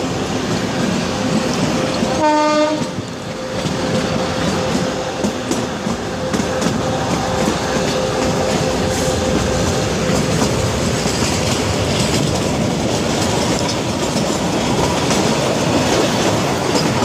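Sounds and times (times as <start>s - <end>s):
train wheels clicking over rail joints: 0.0s - 17.0s
locomotive horn blast: 2.0s - 11.4s.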